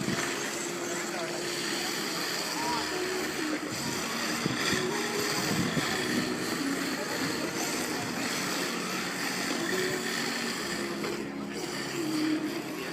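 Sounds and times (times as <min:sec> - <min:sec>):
background chatter: 0:00.0 - 0:12.9
remote-control car motors whining: 0:00.0 - 0:12.9.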